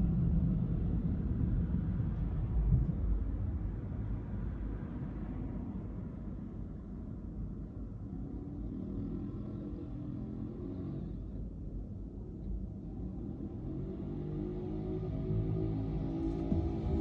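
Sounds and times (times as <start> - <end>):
car engine rumble: 14.8 - 17.0
tyre noise on road: 15.2 - 17.0.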